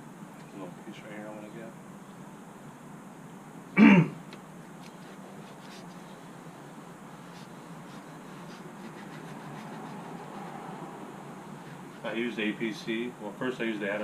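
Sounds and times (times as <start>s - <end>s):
pad scrubbing plastic: 7.2s - 10.8s.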